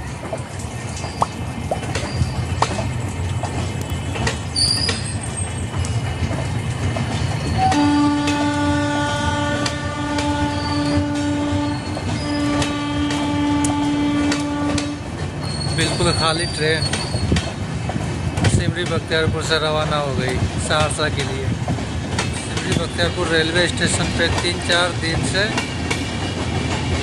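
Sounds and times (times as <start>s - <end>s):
train wheels rumbling: 0.0s - 27.0s
long train horn: 7.6s - 15.1s.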